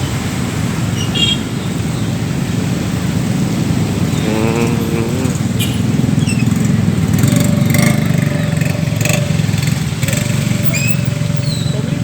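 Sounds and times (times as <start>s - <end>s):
small motorcycle engine running: 3.8s - 12.0s.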